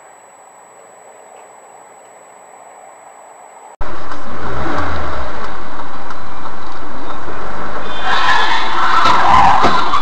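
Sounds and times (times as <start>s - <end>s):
in-car engine and road hum: 3.7s - 10.0s.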